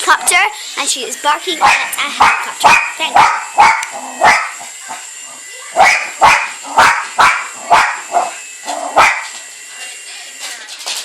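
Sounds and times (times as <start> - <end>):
dog barking: 1.6 - 4.6, 5.8 - 8.3, 9.0 - 9.3.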